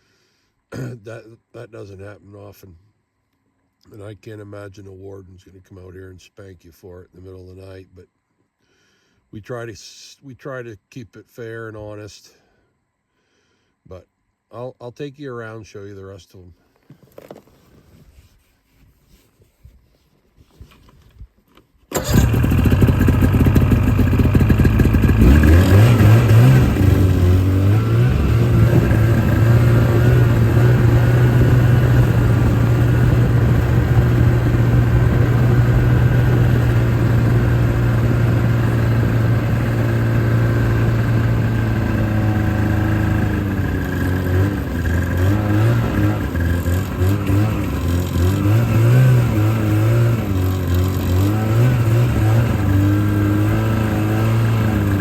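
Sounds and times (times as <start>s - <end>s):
vehicle engine starting and revving: 21.9s - 55.0s.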